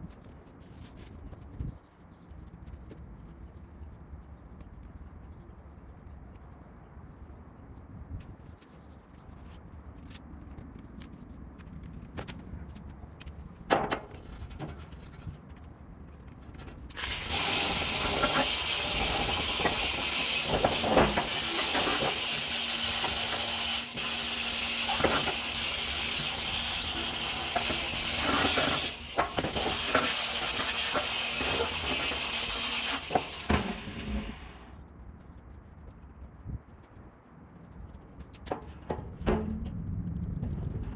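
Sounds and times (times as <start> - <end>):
loud hiss of spraying air: 17.0 - 34.7.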